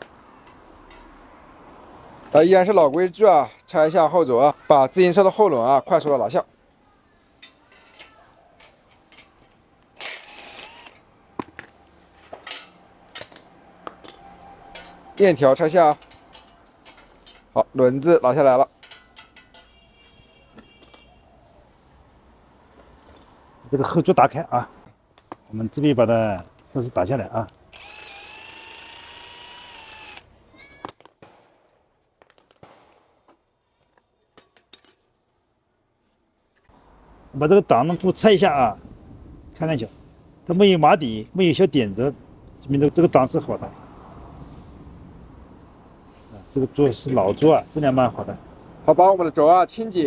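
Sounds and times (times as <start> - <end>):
electric drill running: 10.0 - 11.0, 27.8 - 30.3
metallic clicks and clanks: 10.9 - 17.6, 18.6 - 19.8.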